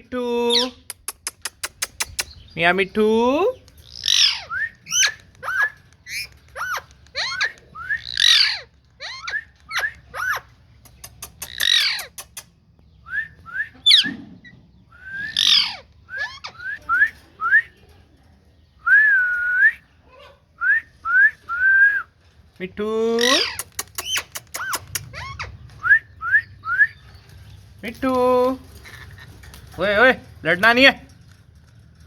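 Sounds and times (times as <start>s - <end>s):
parakeet chirping: 3.9s - 12.4s
parakeet squawks: 4.0s - 10.5s, 11.4s - 12.2s, 15.4s - 16.7s, 23.2s - 25.6s.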